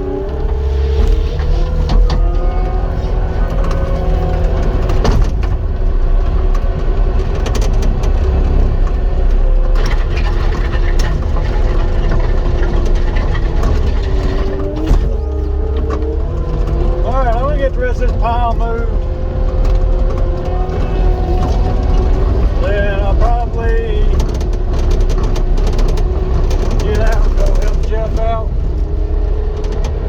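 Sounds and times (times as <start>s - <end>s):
hydraulic whine: 0.0s - 6.1s
diesel engine under load: 0.0s - 30.0s.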